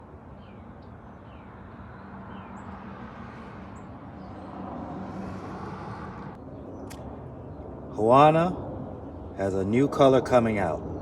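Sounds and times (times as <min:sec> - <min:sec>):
birds chirping: 0:00.2 - 0:04.8.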